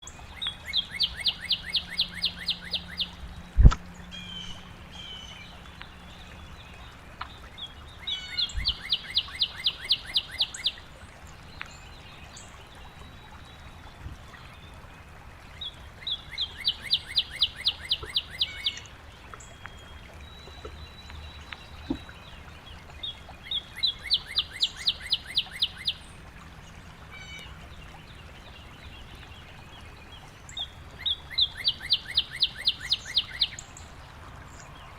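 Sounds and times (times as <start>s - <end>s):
songbird trilling: 0.4s - 5.6s, 8.0s - 10.8s, 16.0s - 18.9s, 23.5s - 26.0s, 30.5s - 33.8s.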